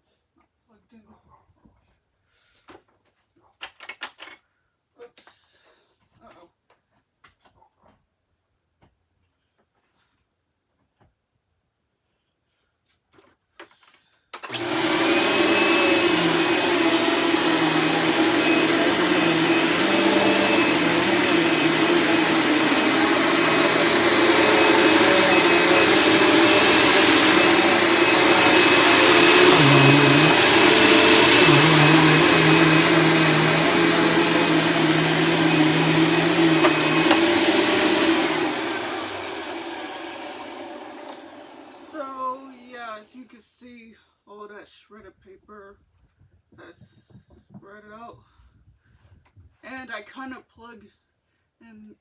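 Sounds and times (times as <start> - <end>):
vacuum cleaner running: 14.4 - 42.1.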